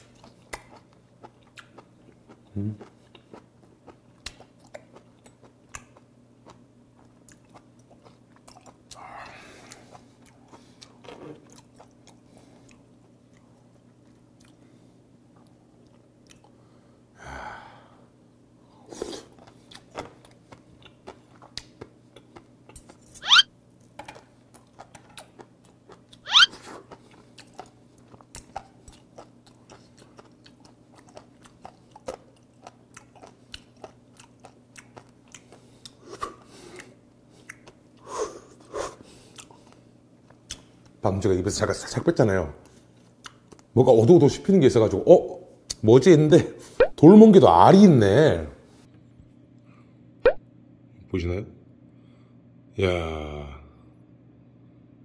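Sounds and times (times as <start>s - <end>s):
soft wet chewing: 0.0s - 16.7s, 18.6s - 23.1s, 23.8s - 41.0s, 42.6s - 43.7s.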